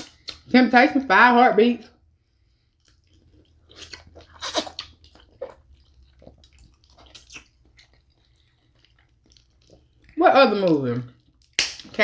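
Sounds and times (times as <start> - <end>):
wet chewing and sucking: 2.2 - 11.9.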